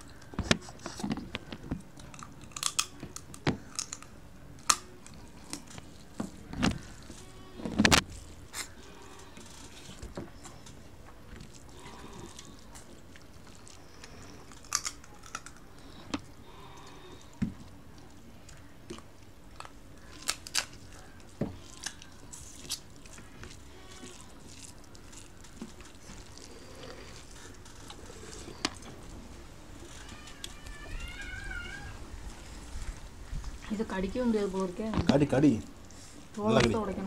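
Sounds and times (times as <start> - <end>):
quiet chewing: 0.0 - 33.8
crab shell cracking: 1.2 - 10.8, 11.4 - 29.0.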